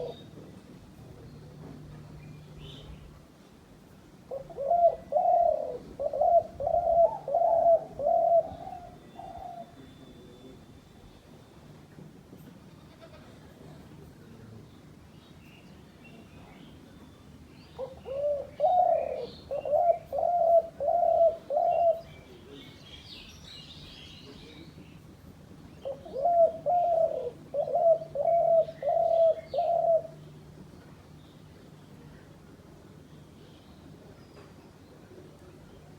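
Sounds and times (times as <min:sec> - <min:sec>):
dove cooing: 0:00.0 - 0:00.5, 0:04.3 - 0:09.8, 0:17.8 - 0:22.1, 0:25.8 - 0:30.2
faint bird chirps: 0:08.1 - 0:11.6.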